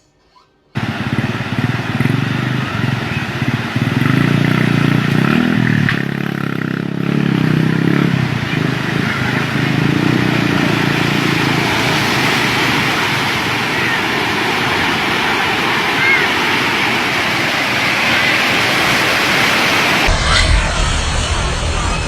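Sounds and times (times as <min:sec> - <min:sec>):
engine droning: 0:00.8 - 0:22.0
rushing noise: 0:00.8 - 0:22.0.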